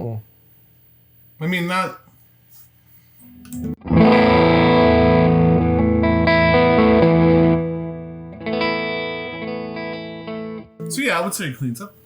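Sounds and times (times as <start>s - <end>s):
overdriven electric guitar chords: 3.2s - 11.0s.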